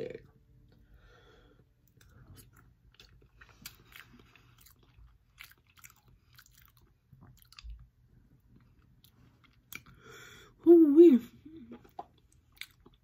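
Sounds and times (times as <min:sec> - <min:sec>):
person chewing food: 0:00.6 - 0:10.1, 0:11.6 - 0:13.0.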